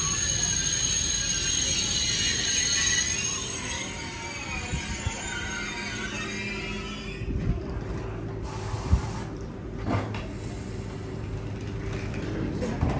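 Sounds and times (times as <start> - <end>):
train equipment humming: 0.0 - 12.6
hiss: 8.4 - 9.3.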